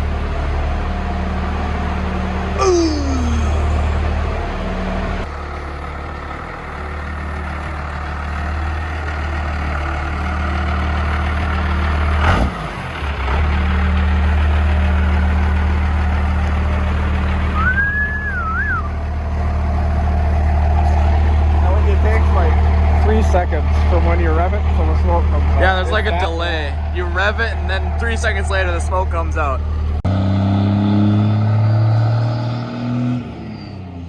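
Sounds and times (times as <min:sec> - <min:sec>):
diesel truck engine running: 0:00.0 - 0:34.0
high whistle: 0:17.6 - 0:18.9.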